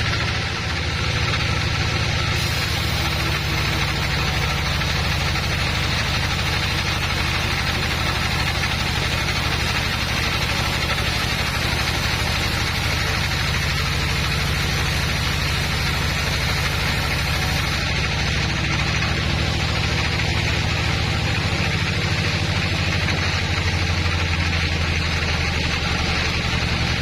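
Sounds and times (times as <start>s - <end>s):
sawmill engine pulsing hum: 0.0s - 27.0s
hiss: 2.1s - 18.2s.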